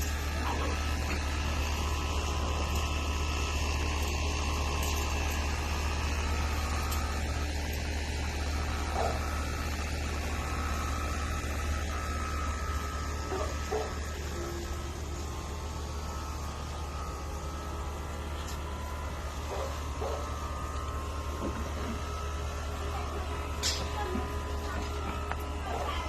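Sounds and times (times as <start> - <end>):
steady low hum: 10.0 - 26.0.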